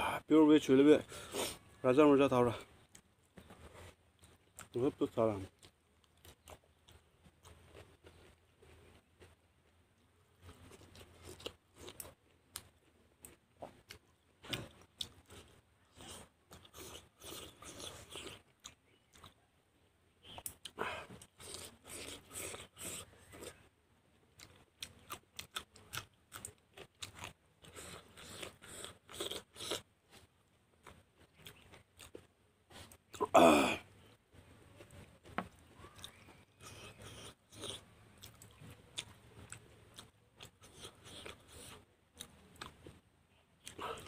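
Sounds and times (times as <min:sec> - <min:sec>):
man chewing food: 0:02.6 - 0:44.0
short vocal noise: 0:33.2 - 0:33.9.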